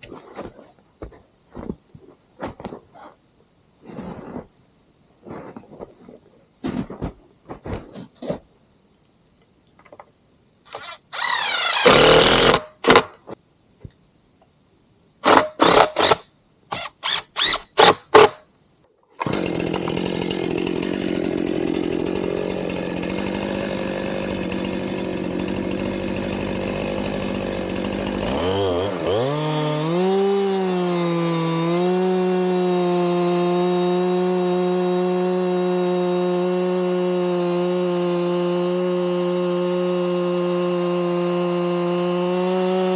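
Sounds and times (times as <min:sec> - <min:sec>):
chainsaw starting and running: 0:10.7 - 0:13.0, 0:19.2 - 0:42.9.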